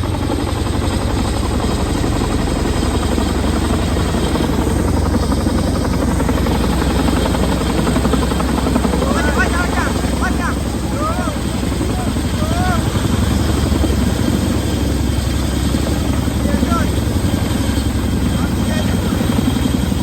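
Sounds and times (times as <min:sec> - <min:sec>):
helicopter rotor beat: 0:00.0 - 0:20.0.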